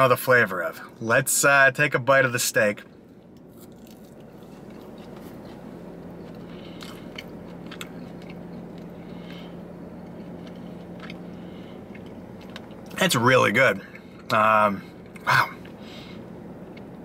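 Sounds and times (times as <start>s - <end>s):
steady low hum: 0.0s - 17.0s
person chewing: 3.2s - 13.0s
soft chewing clicks: 3.2s - 13.0s.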